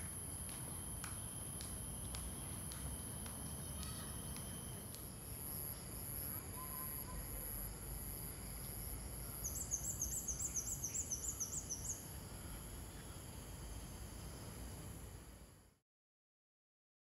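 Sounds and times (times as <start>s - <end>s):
high-pitched insect drone: 0.0s - 15.6s
bird singing rising notes: 9.4s - 12.0s.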